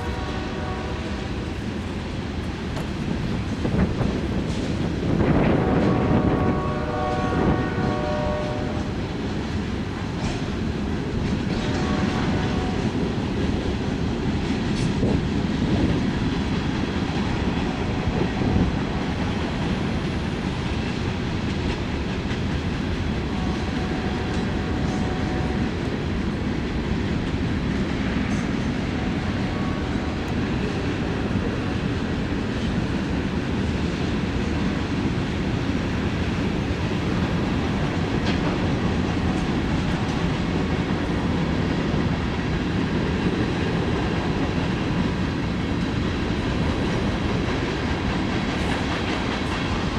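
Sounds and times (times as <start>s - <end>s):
locomotive horn: 0.0s - 1.6s, 5.4s - 9.1s, 11.5s - 13.1s, 23.3s - 26.0s, 28.3s - 31.8s
train wheels rumbling on rails: 0.0s - 49.9s.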